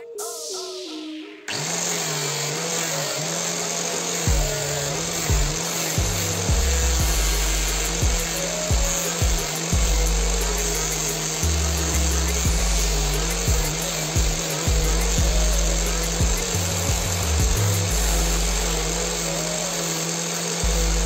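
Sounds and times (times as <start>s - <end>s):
angle grinder grinding wood: 1.5s - 21.0s
background music with drums: 4.3s - 19.6s.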